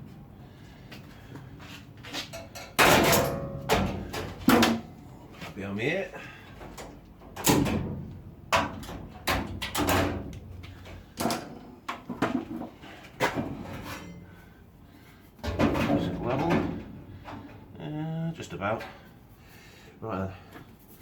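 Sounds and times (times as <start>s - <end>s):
metal tools knocking and clunking: 2.2s - 4.8s.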